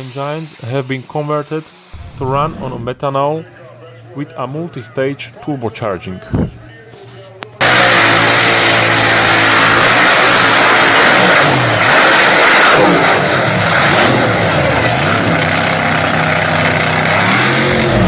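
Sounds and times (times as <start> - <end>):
tractor engine at full throttle: 7.6 - 18.0.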